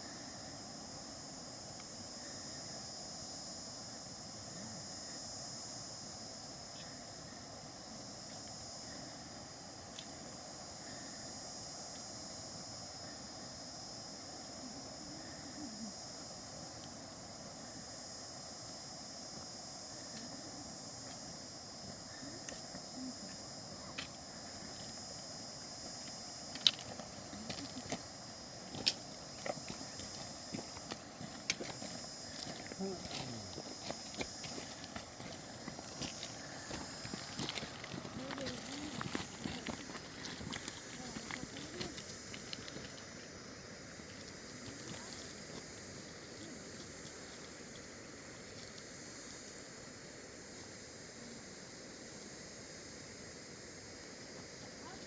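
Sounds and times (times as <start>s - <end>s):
insects chirring: 0.0s - 55.0s
low outdoor background noise: 0.0s - 55.0s.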